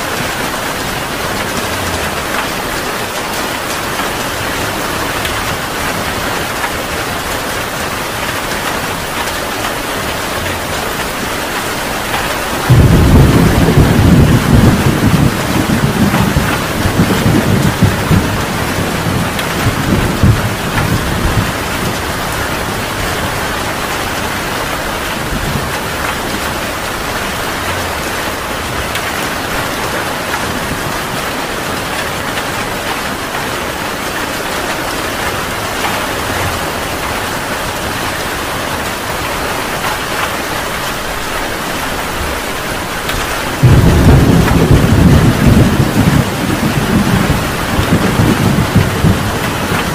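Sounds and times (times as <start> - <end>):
heavy rain: 0.0 - 49.9
thunder rumbling: 0.0 - 49.9
loud thunderclap: 12.1 - 28.0, 43.0 - 49.9.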